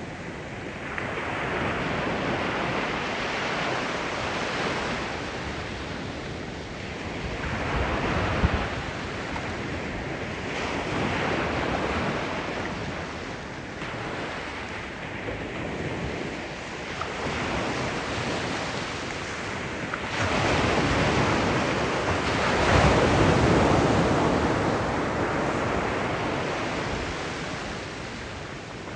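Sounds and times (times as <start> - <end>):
sea waves breaking on shore: 0.0 - 28.9.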